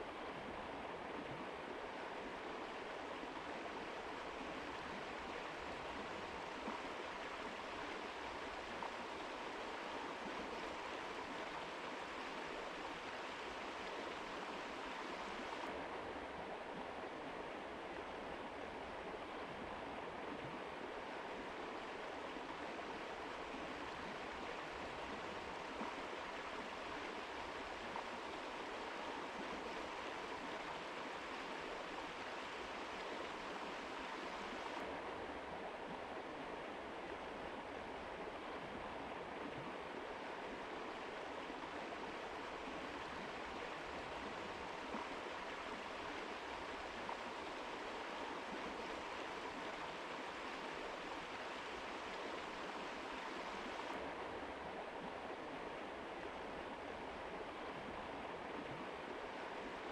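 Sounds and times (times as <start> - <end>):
mountain river flowing: 0.0 - 59.9.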